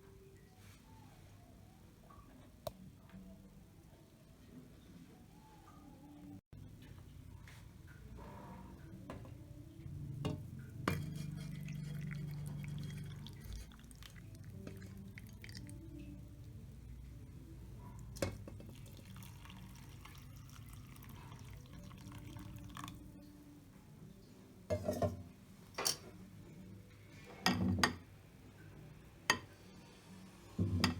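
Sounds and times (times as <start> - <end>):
dishes clinking: 10.3 - 13.8, 24.7 - 25.2, 25.8 - 26.2, 27.3 - 28.0.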